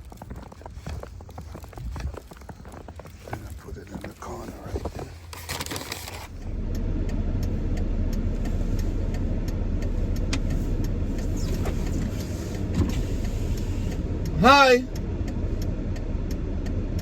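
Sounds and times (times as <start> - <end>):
vehicle low rumble: 0.0 - 17.0
faint regular clicks: 5.3 - 17.0.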